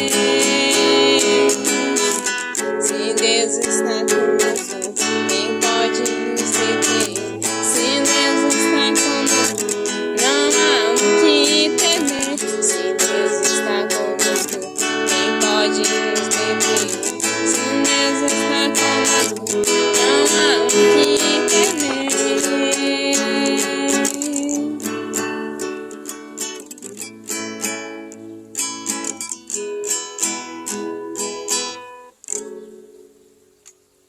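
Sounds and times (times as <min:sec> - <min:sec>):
acoustic guitar strumming: 0:00.0 - 0:34.0
melody line: 0:13.1 - 0:26.0.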